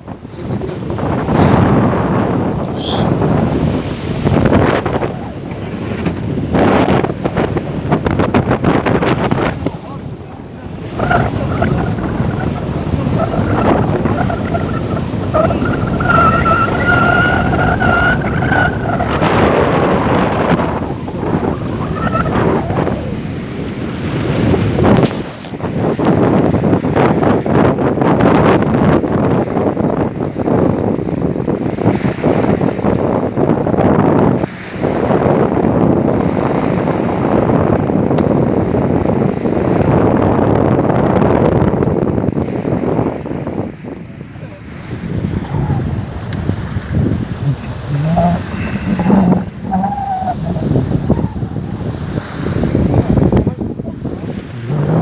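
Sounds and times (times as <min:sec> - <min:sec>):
water noise: 0:00.0 - 0:55.0
wind buffeting microphone: 0:00.0 - 0:55.0
steady pitched tone: 0:47.2 - 0:52.0.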